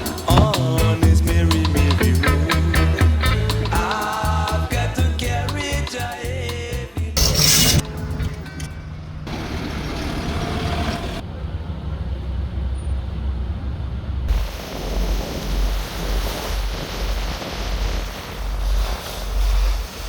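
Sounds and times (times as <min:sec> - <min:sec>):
traffic rumble: 0:07.1 - 0:20.0.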